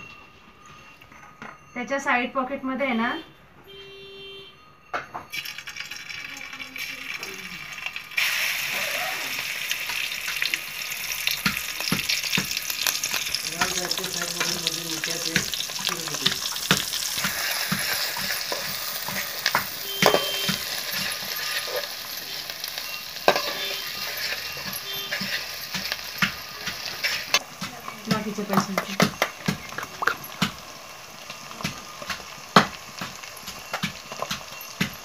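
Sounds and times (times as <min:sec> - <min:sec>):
paste sizzling in hot oil: 0:05.3 - 0:35.0
metal ladle scraping a pan: 0:15.3 - 0:27.4.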